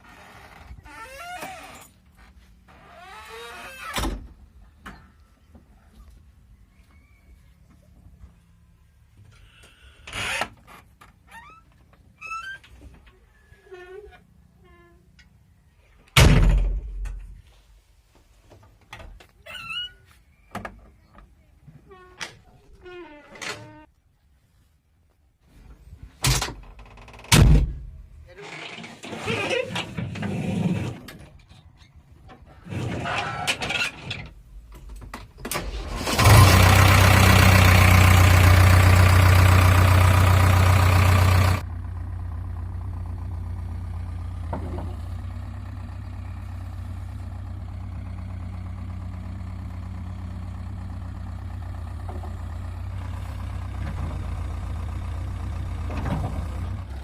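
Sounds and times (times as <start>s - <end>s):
diesel engine starting and idling: 35.3s - 57.0s.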